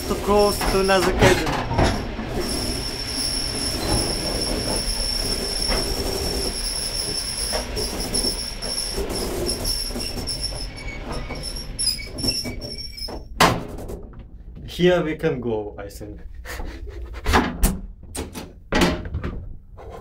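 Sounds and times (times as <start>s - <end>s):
train cars rumbling and rattling: 0.0s - 15.2s.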